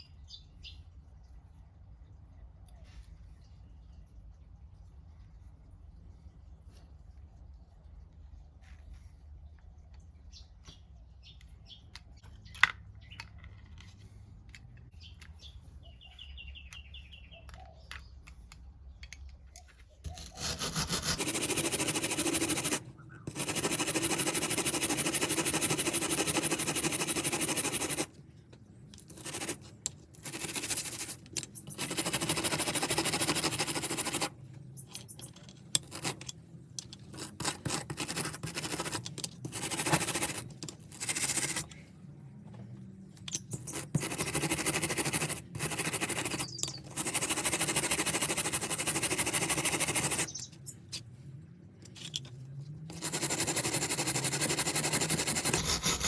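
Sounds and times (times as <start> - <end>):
handheld power tool grinding: 20.1 - 27.0, 54.8 - 56.0.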